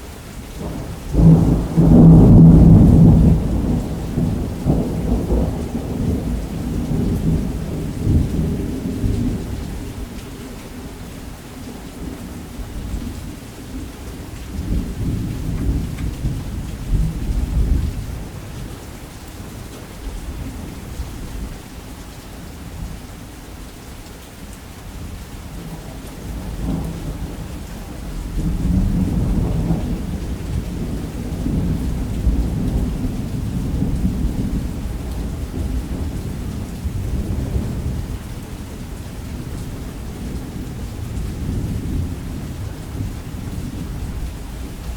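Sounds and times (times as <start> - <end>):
heavy rain hissing: 0.0 - 44.9
rolling thunder: 0.6 - 10.3, 25.6 - 44.9.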